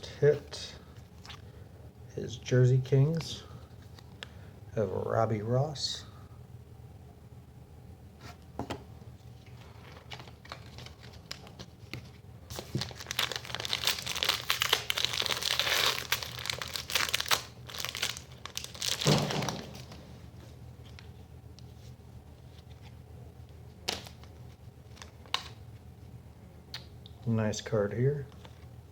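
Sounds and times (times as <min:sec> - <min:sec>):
plastic wrapper tearing and crinkling: 0:09.8 - 0:11.7, 0:12.5 - 0:20.0.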